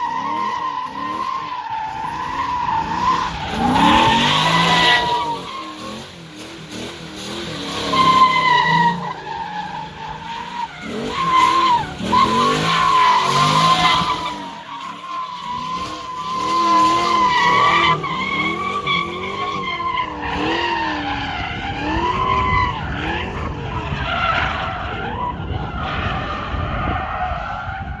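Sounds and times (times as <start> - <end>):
tyres squealing: 0.0 - 6.4, 7.6 - 20.6
car engine revving: 0.0 - 26.6.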